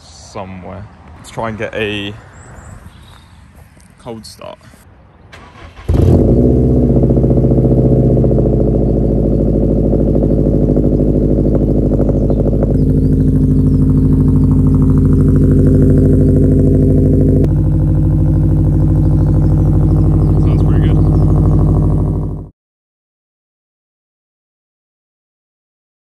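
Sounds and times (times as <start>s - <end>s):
car engine starting and idling: 5.3s - 22.5s.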